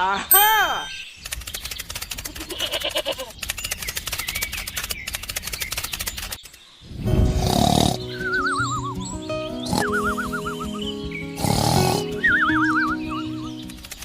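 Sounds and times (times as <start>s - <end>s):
mechanical clicking rattle: 1.2s - 6.6s, 13.6s - 14.0s.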